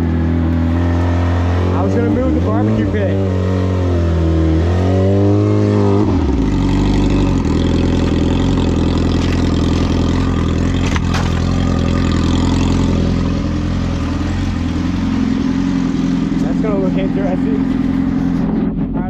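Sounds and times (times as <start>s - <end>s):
car engine idling: 6.2s - 19.0s.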